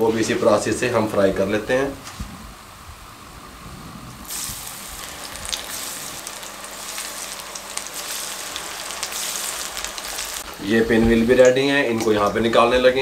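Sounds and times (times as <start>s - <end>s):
food sizzling in hot oil: 4.2s - 10.7s.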